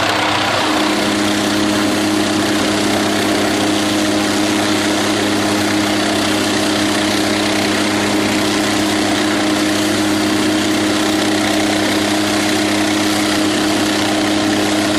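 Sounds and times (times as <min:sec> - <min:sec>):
steady engine drone: 0:00.0 - 0:14.9.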